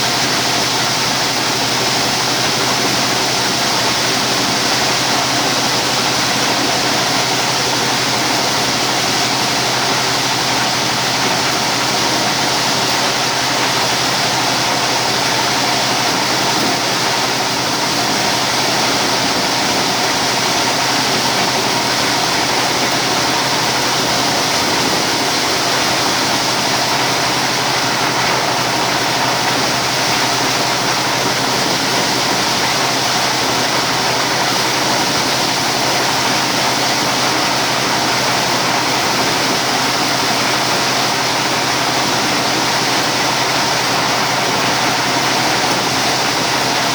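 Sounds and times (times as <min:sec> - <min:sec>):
corn sheller rushing noise: 0:00.0 - 0:46.9
diesel engine drone: 0:00.0 - 0:46.9.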